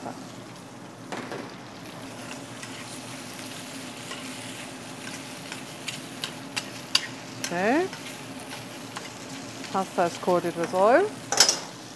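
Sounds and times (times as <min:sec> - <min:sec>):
onions and garlic sizzling in oil: 0:00.0 - 0:11.9
stirring clicks and scrapes: 0:04.0 - 0:09.8.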